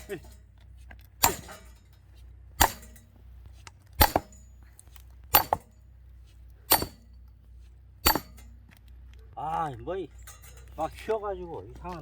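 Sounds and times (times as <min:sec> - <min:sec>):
axe strikes splitting log: 0:01.2 - 0:01.6, 0:02.6 - 0:03.0, 0:04.0 - 0:04.4, 0:05.3 - 0:05.7, 0:06.7 - 0:07.0, 0:08.0 - 0:08.4.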